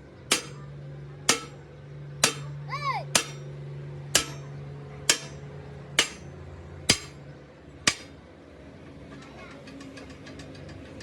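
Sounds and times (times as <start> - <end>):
steady low hum: 0.0 - 9.0
hammer striking steel wheel rim: 0.2 - 8.3.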